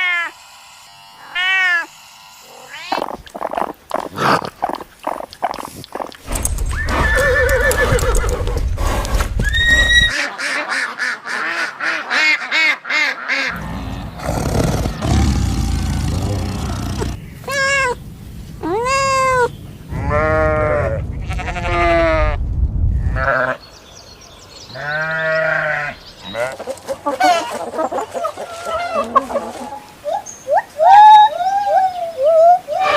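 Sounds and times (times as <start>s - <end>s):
livestock bleating: 19.9s - 22.1s, 24.7s - 26.6s.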